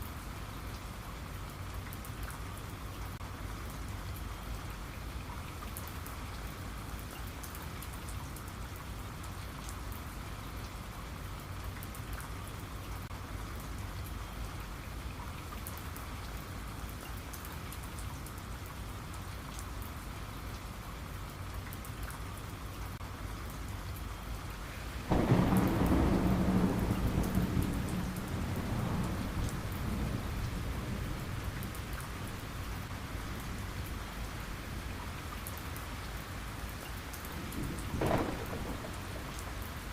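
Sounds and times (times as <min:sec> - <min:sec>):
steady rain falling: 0:00.0 - 0:39.9
thunder clap rumbling: 0:25.1 - 0:32.9, 0:37.4 - 0:39.7.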